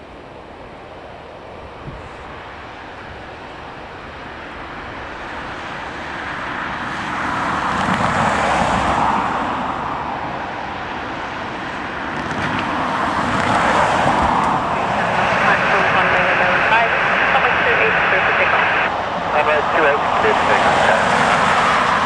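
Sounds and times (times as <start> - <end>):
vehicle rushing past: 5.0 - 17.2, 18.8 - 22.0.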